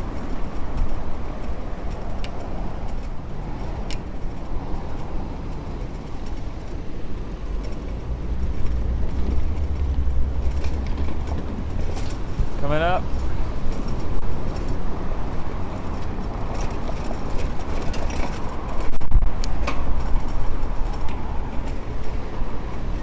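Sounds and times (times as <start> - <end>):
street traffic: 0.0 - 23.0
wind rumbling on microphone: 0.0 - 23.0
sharp clicks and rattles: 0.1 - 22.2.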